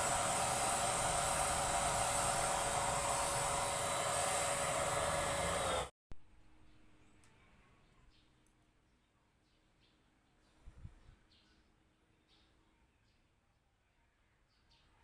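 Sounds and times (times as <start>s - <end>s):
hiss of air and spray: 0.0s - 5.9s
paint sprayer motor whine: 0.0s - 5.9s.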